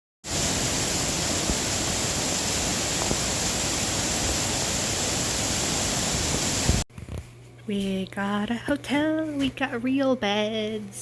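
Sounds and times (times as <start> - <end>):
waterfall rushing: 0.3 - 6.8.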